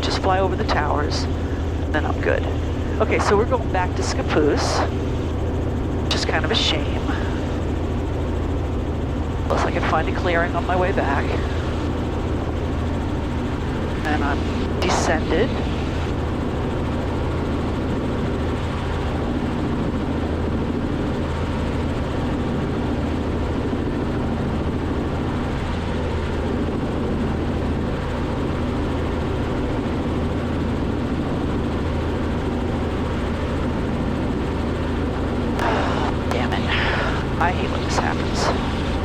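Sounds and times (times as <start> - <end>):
helicopter engine and rotor drone: 0.0 - 39.0.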